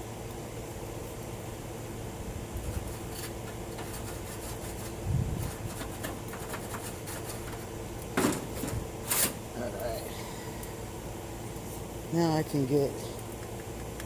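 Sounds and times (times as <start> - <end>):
steady hum: 0.0 - 14.0
rubbing and scratching on metal: 2.6 - 9.4.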